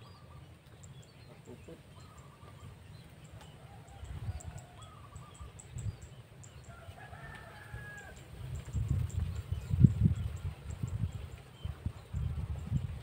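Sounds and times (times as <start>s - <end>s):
faint rooster crowing: 3.4s - 5.2s, 6.6s - 8.2s.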